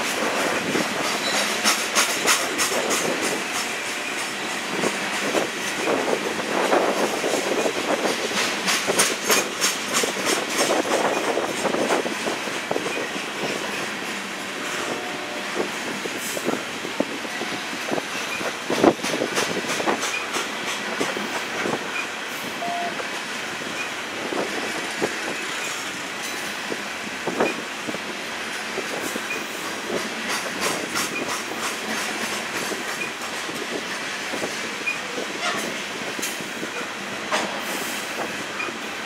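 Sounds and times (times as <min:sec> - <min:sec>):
train cars clanking: 0:00.0 - 0:39.0
train wheels rolling on rails: 0:00.0 - 0:39.0.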